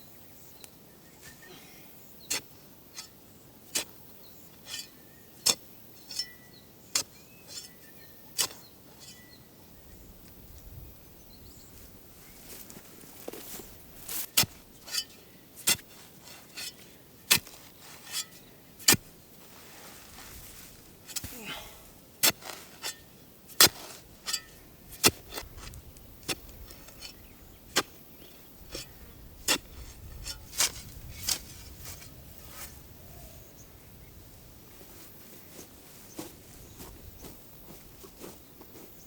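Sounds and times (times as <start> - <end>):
faint bird chirps: 32.0 - 34.2.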